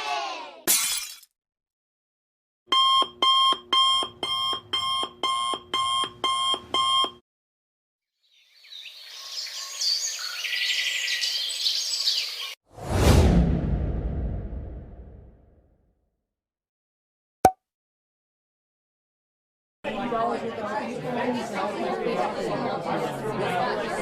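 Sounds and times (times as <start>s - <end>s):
alarm clock beeping: 2.7s - 7.2s
loud whoosh: 12.7s - 15.6s.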